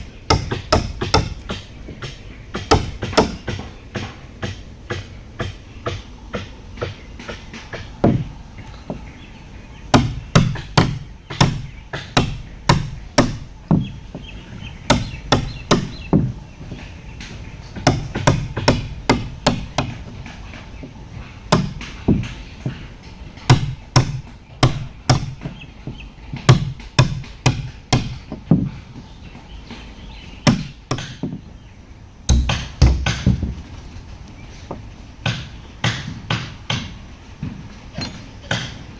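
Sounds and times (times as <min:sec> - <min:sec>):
hand tool striking wood: 0:00.0 - 0:08.3, 0:21.5 - 0:22.8, 0:23.4 - 0:28.8, 0:30.5 - 0:31.4, 0:32.3 - 0:33.6.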